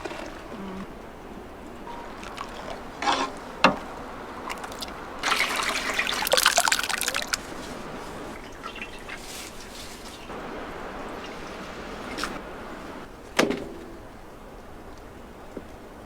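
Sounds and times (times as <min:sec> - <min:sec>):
liquid pouring and trickling: 0:04.4 - 0:10.2.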